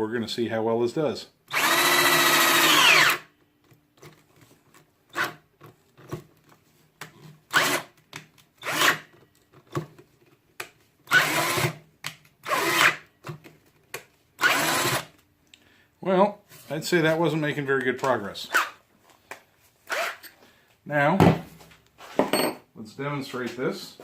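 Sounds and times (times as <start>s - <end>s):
cordless drill straining: 1.5s - 3.3s, 7.5s - 7.9s, 8.6s - 9.1s, 11.1s - 11.8s, 12.4s - 13.1s, 14.4s - 15.1s, 19.8s - 20.4s.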